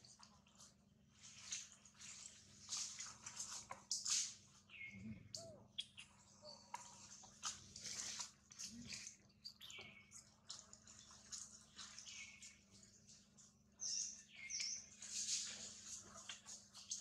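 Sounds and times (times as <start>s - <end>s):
light clicks and rustles: 0.0s - 4.9s, 5.9s - 17.0s
faint high bird chirps: 3.4s - 13.2s, 13.8s - 17.0s.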